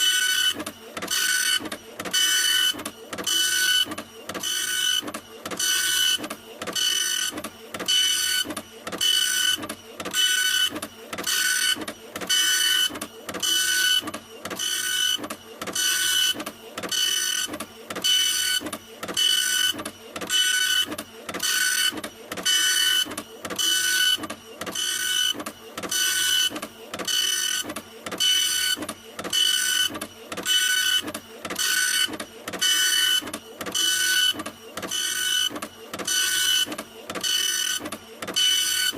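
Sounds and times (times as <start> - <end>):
printer printing: 0.0 - 38.9.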